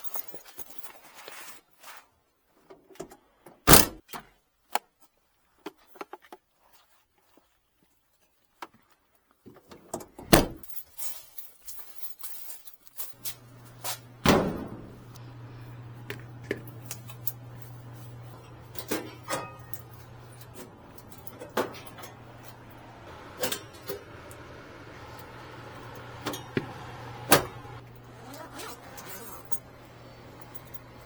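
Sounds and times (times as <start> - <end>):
steady low hum: 13.2 - 31.0.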